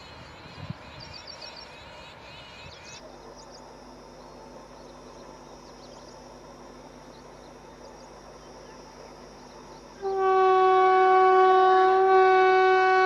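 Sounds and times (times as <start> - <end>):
birds chirping: 0.0 - 10.1
high insect drone: 0.0 - 13.0.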